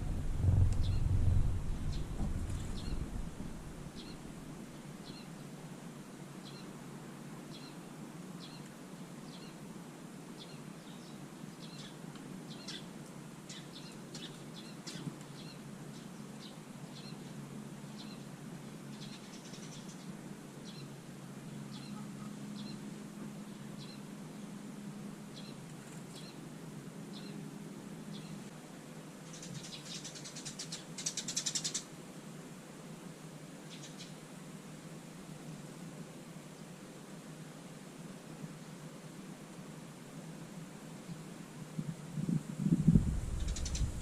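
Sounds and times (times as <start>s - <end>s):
songbird chirping: 0.0s - 5.4s, 13.5s - 18.3s, 28.1s - 28.5s
faint low hum: 0.0s - 5.5s.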